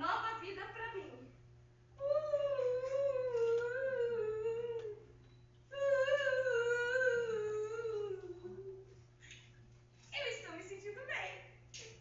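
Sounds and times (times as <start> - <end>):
high voice humming a melody: 2.0 - 5.1, 5.7 - 9.0.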